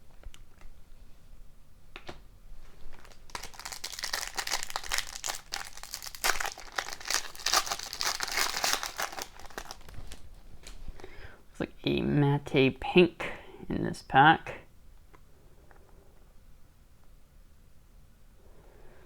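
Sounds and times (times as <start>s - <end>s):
wrapper crinkling: 2.6s - 10.8s.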